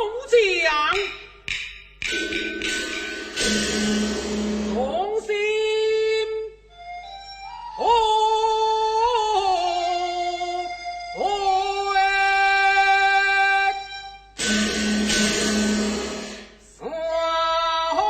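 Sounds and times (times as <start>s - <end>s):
accompanying ensemble: 2.0s - 5.2s
opera singing with pitch slides: 7.7s - 13.9s, 16.4s - 18.0s.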